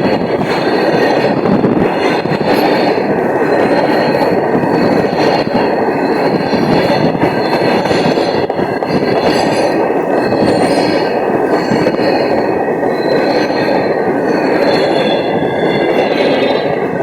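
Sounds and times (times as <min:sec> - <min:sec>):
train wheels rumbling on rails: 0:00.0 - 0:17.0
high wheel squeals: 0:12.8 - 0:16.8.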